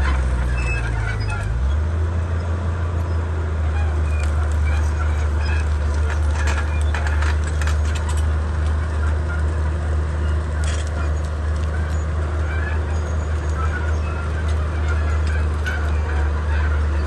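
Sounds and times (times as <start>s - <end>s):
diesel engine running under load: 0.0s - 17.0s
sharp clicks and cracks: 4.1s - 16.4s.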